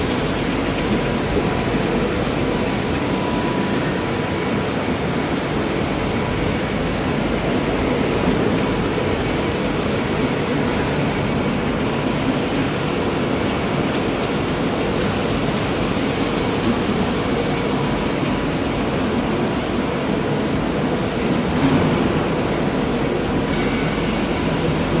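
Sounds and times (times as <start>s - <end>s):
steady mechanical noise: 0.0s - 25.0s.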